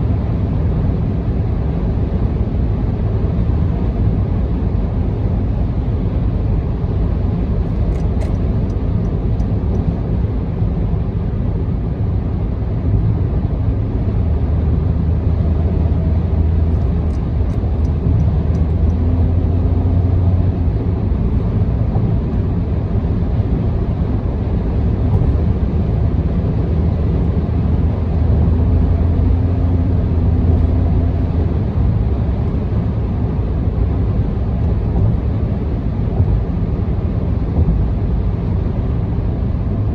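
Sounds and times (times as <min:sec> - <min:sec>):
car engine drone: 0:00.0 - 0:39.9
tyre and road noise: 0:14.7 - 0:39.9.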